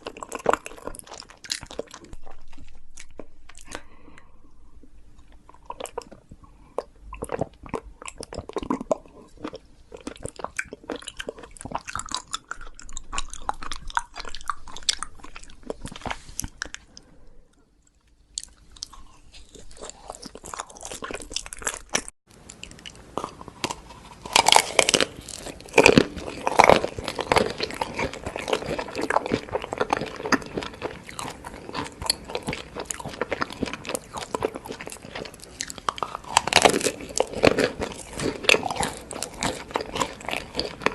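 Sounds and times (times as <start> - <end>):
person crunching and chewing food: 0.0 - 40.9.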